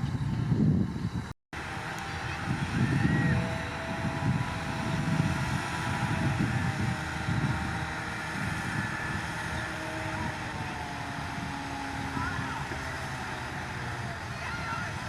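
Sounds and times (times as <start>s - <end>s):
bulldozer diesel engine under load: 0.0s - 15.0s.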